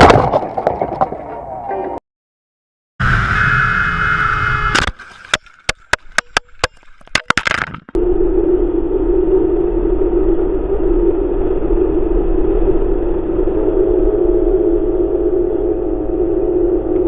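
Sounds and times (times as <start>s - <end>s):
steady whine over rumble: 3.0s - 4.9s, 8.0s - 17.0s
engine drone: 3.0s - 5.1s, 8.0s - 17.0s
sharp clicks and knocks: 4.8s - 8.0s.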